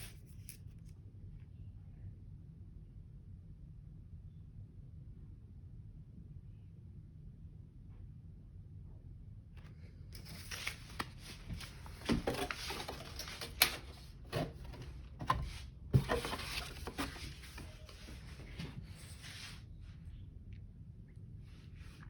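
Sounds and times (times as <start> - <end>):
paper rustling and crinkling: 0.0 - 0.7, 10.2 - 19.6.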